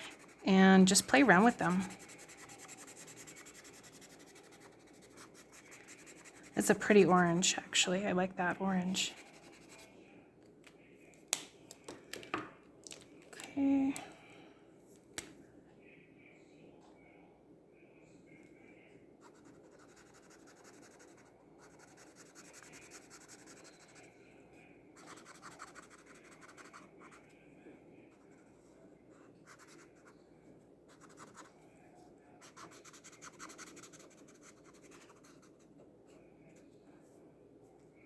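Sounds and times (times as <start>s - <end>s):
marker nib scratching: 0.0s - 7.4s, 19.3s - 24.0s, 25.0s - 27.2s, 30.9s - 31.5s, 32.4s - 35.7s.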